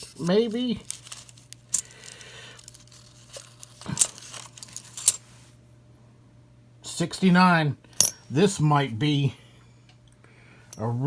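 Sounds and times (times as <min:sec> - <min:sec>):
coins clinking: 0:00.0 - 0:05.2
low steady hum: 0:00.0 - 0:11.0.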